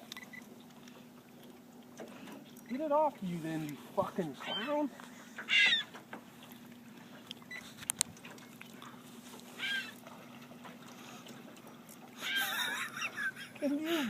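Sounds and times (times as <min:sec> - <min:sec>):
seagull squawking: 0:04.4 - 0:06.0, 0:09.5 - 0:10.0, 0:12.2 - 0:13.2.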